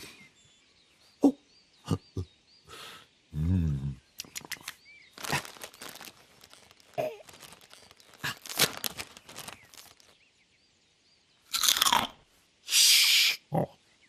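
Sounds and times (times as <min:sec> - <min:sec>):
sharp clicks: 0:04.2 - 0:04.8
crinkling rustling: 0:04.2 - 0:10.3.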